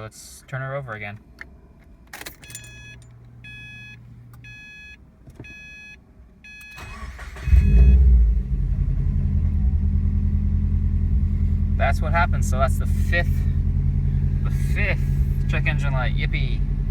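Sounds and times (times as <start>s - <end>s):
car engine starting and idling: 0.8s - 16.9s
dashboard warning chime beeping: 2.3s - 8.1s.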